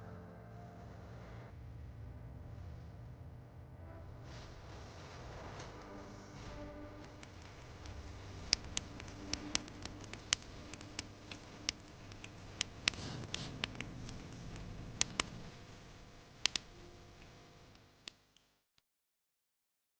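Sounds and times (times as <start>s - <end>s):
low rumble: 0.2s - 17.2s
wood fire crackling and popping: 5.5s - 17.4s.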